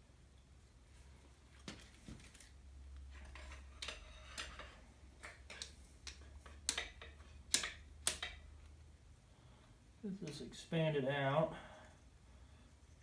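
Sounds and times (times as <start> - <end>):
low steady hum: 0.0 - 13.0
tool clicking and knocking on metal: 3.2 - 8.5.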